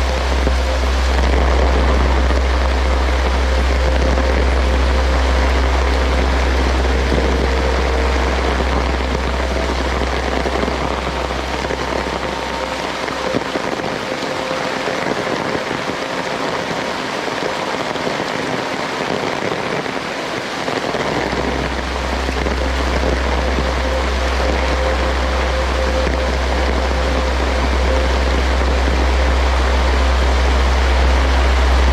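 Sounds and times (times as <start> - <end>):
low rumble: 0.0 - 19.1, 20.4 - 31.9
heavy rain falling: 0.0 - 31.9.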